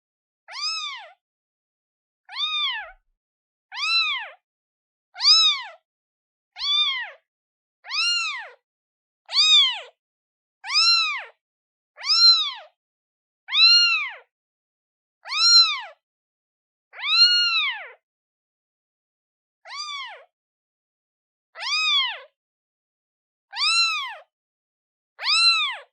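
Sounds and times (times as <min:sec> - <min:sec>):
kitten meowing: 0:00.5 - 0:01.2, 0:02.3 - 0:03.0, 0:03.7 - 0:04.4, 0:05.2 - 0:05.8, 0:06.6 - 0:08.6, 0:09.3 - 0:10.0, 0:10.6 - 0:11.4, 0:12.0 - 0:12.8, 0:13.5 - 0:14.3, 0:15.2 - 0:16.0, 0:16.9 - 0:18.0, 0:19.7 - 0:20.3, 0:21.6 - 0:22.3, 0:23.5 - 0:24.3, 0:25.2 - 0:25.9.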